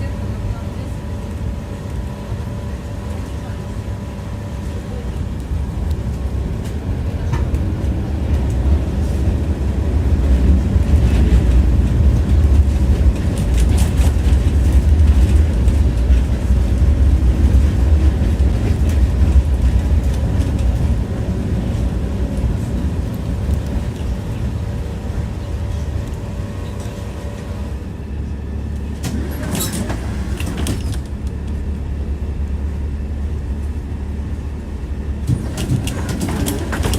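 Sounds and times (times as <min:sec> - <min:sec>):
tram rumbling on rails: 0:00.0 - 0:36.9
wheels clacking over track: 0:10.1 - 0:24.6, 0:35.2 - 0:36.9.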